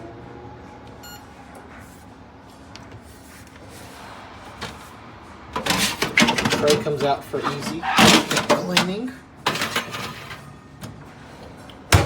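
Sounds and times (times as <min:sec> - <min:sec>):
oven fan whirring and humming: 0:00.0 - 0:12.0
short beep: 0:01.0 - 0:01.2.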